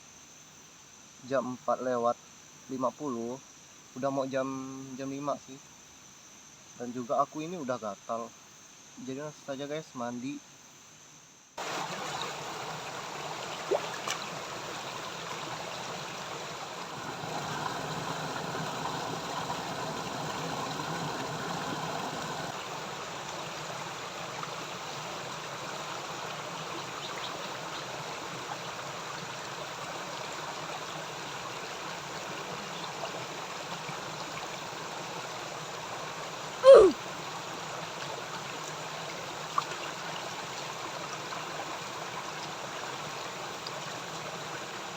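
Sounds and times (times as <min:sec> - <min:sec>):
stream water running: 0:11.6 - 0:44.9.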